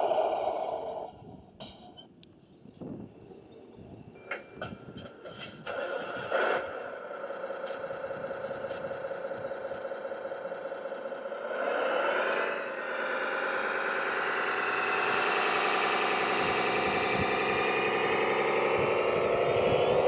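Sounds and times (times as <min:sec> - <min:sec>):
electric motor and gears whining: 0:05.6 - 0:20.0.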